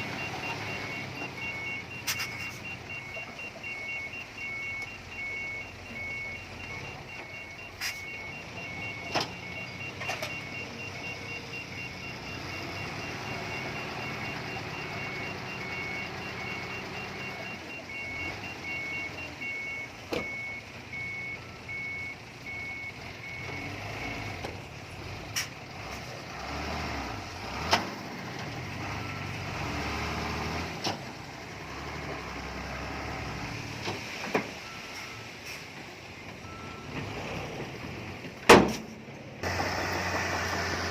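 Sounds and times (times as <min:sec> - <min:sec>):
backup alarms beeping: 0:00.0 - 0:24.7, 0:34.5 - 0:35.6, 0:36.4 - 0:37.0
heavy machinery engine rumble: 0:27.1 - 0:40.9.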